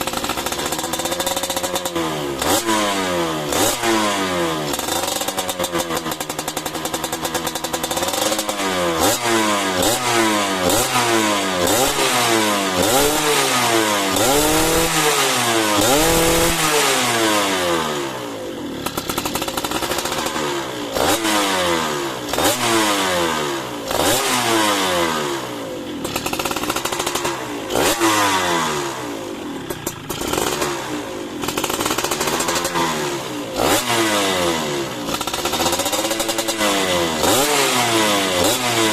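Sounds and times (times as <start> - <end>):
two-stroke engine revving: 0.0 - 38.9.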